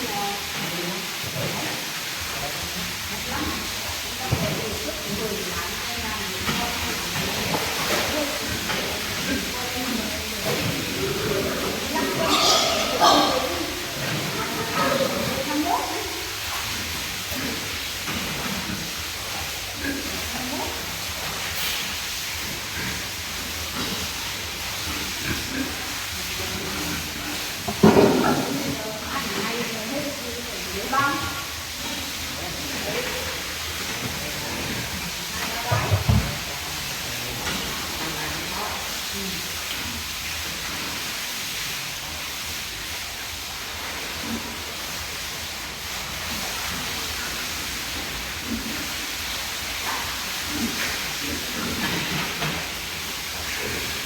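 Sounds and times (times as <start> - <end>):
high-pressure water spray hissing: 0.0 - 54.0
spray hissing: 14.8 - 28.3.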